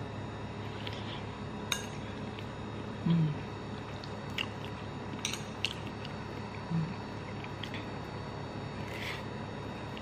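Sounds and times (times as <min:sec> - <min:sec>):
person humming mm: 0:03.0 - 0:03.5, 0:06.6 - 0:07.0
person chewing: 0:03.8 - 0:07.9.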